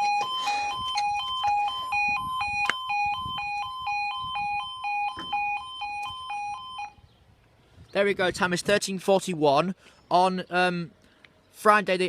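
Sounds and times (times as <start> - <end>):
level crossing two-tone alarm: 0.0 - 7.0.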